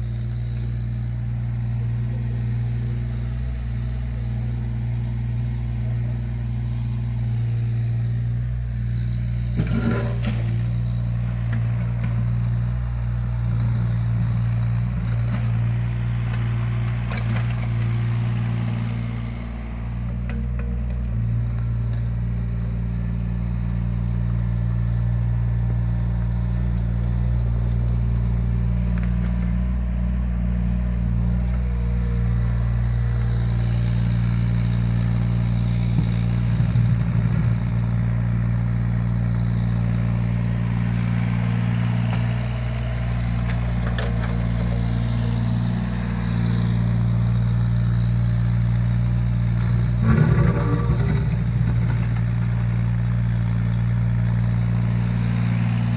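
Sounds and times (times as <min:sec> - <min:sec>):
excavator diesel engine running: 0:00.0 - 0:55.9
clattering: 0:50.0 - 0:52.8.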